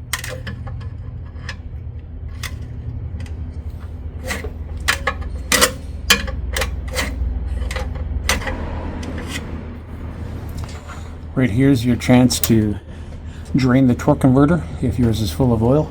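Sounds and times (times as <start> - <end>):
metallic clicks of hand tools: 0.0 - 1.7, 4.2 - 9.4
low hum: 0.0 - 15.9.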